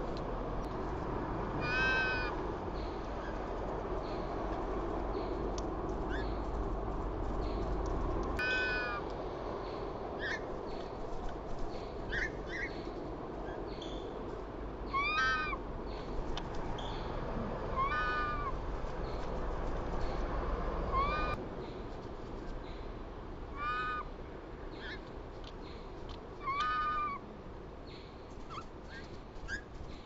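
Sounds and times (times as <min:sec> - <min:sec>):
loud nasal bird calls: 0:01.6 - 0:03.4, 0:08.4 - 0:09.0, 0:14.8 - 0:16.1, 0:17.8 - 0:19.2, 0:23.6 - 0:24.1.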